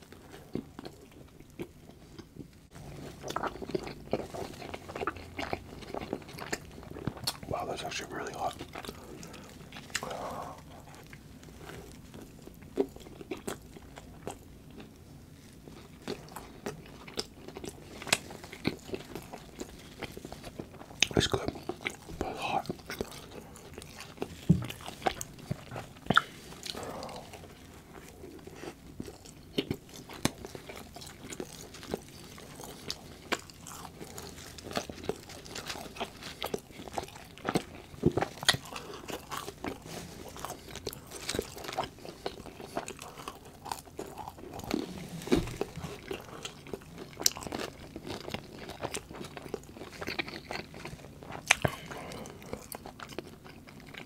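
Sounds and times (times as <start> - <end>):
crunchy chewing of food: 0.0 - 54.0.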